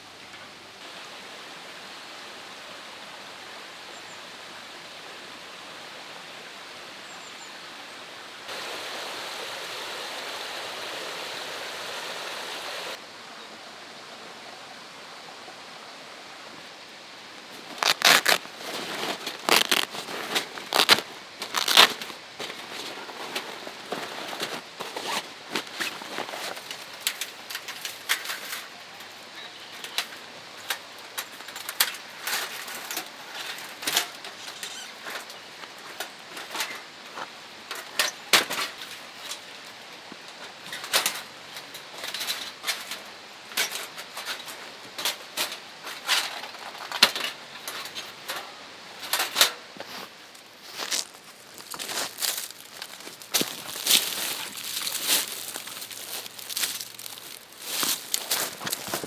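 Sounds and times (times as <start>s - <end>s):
faint steady hiss: 0.0s - 59.0s.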